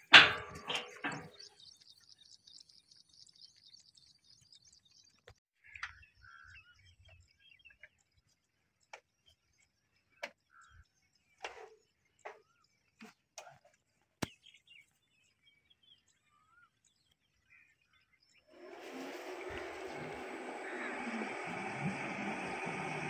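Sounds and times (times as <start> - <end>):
small birds chirping: 0.7 - 23.0.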